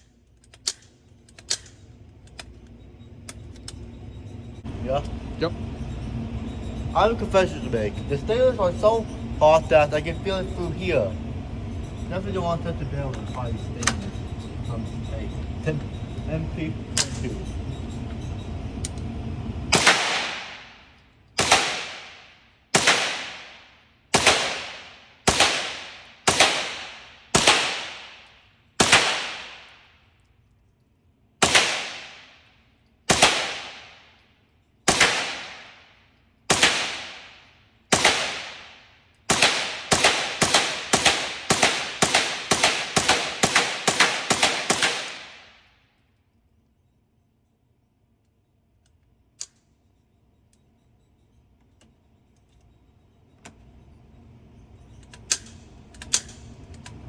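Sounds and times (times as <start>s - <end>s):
rifle gunshots ringing: 19.7s - 20.8s, 21.4s - 29.8s, 31.4s - 32.4s, 33.1s - 34.1s, 34.9s - 35.9s, 36.5s - 45.6s.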